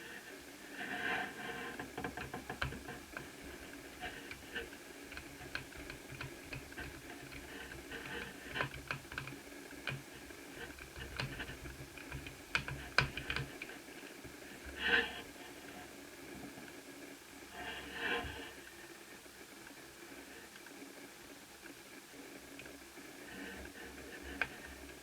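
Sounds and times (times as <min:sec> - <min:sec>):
laptop parts clicking: 0:01.8 - 0:03.4, 0:04.0 - 0:13.8.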